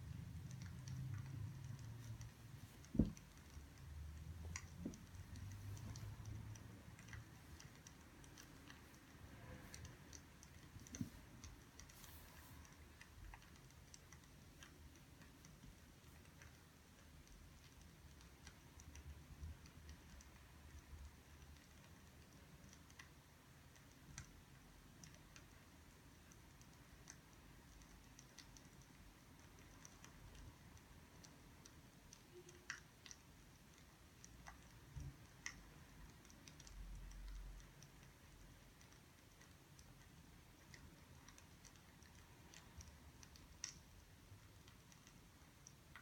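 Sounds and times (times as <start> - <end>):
soft low thump: 2.9 - 3.2.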